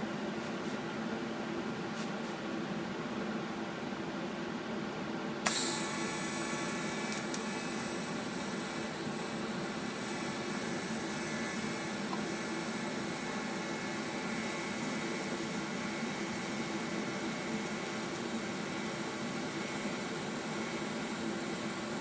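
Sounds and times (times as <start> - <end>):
steady hum: 0.0 - 22.0
welding arc buzzing hiss: 5.4 - 22.0.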